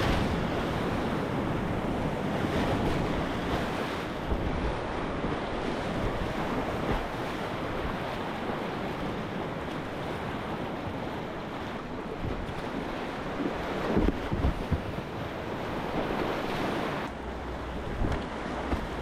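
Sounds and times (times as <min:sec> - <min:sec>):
whitewater rapids rushing: 0:00.0 - 0:00.6
wind buffeting microphone: 0:00.0 - 0:19.0.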